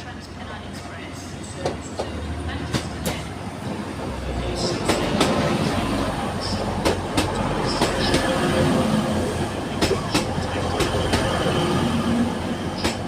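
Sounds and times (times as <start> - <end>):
train wheels clicking over rail joints: 4.7 - 5.7, 6.5 - 8.4, 9.7 - 11.5, 12.8 - 13.0.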